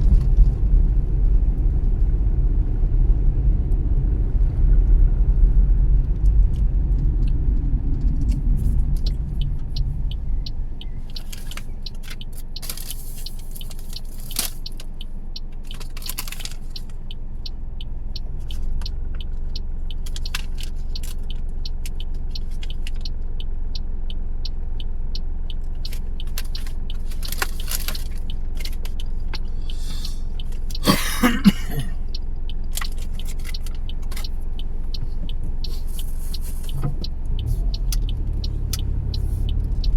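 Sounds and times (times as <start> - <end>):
engine and tyre rumble: 0.0 - 39.9
faint ticks: 32.1 - 39.9.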